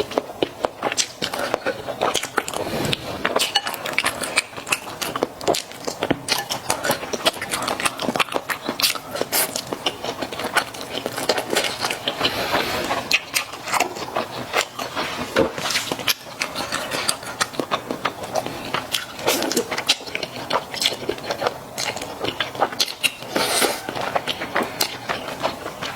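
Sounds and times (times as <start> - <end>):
close chewing sounds: 0.0 - 25.9.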